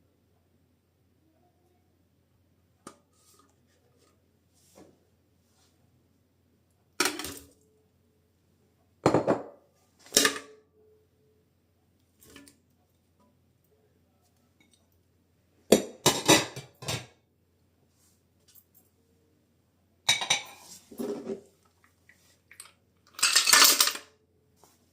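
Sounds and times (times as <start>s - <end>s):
utensils and dishes clattering: 15.8s - 17.1s, 20.1s - 21.4s, 22.5s - 24.1s.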